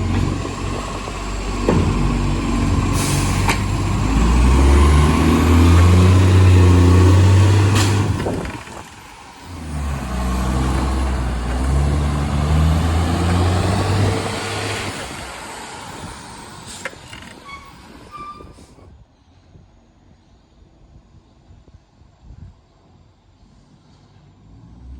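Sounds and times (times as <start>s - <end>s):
diesel engine revving: 0.0s - 18.2s, 24.4s - 24.9s.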